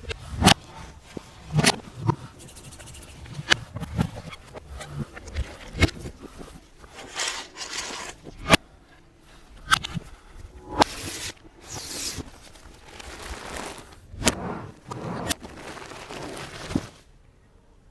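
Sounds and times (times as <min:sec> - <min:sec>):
rustling scrape: 0:00.0 - 0:08.6, 0:09.4 - 0:17.1
sharp knocks and scrapes: 0:00.0 - 0:08.6.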